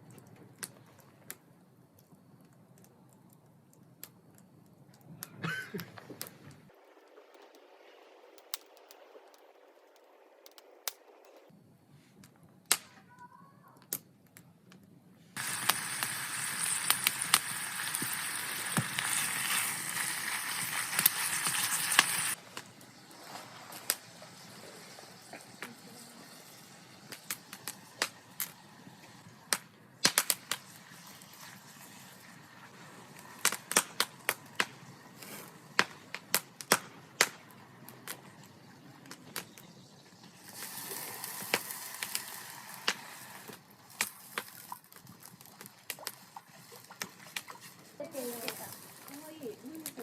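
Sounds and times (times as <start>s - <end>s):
campfire crackling: 0.0s - 50.0s
loud steady hiss: 15.3s - 37.4s, 40.0s - 44.8s.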